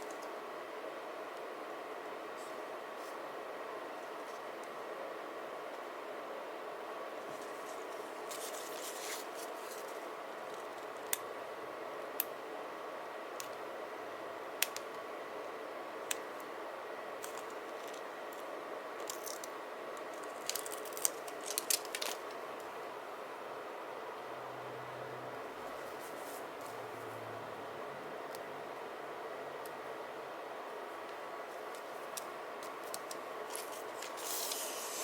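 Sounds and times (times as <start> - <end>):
steady low hum: 0.0 - 35.0
crinkly paper rustling: 7.3 - 10.1, 20.2 - 22.4.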